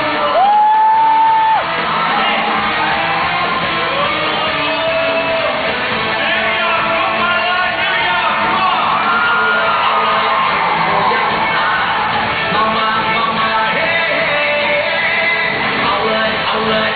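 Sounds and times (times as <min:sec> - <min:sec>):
audience shouting and whooping: 0:00.0 - 0:12.6
live pop band playing: 0:00.0 - 0:16.9.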